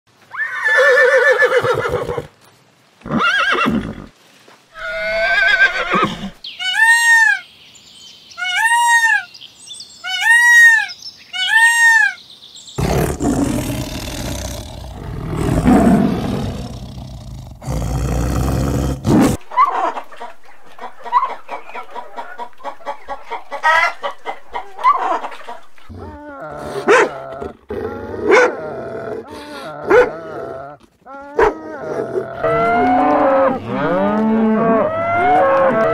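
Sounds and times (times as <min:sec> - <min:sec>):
horse neighing: 0:00.3 - 0:02.3, 0:03.1 - 0:04.1, 0:04.8 - 0:06.4, 0:12.8 - 0:19.4
tiger roar: 0:12.8 - 0:19.4
dog barking: 0:26.8 - 0:27.2, 0:28.3 - 0:28.6, 0:29.9 - 0:30.2, 0:31.4 - 0:31.6.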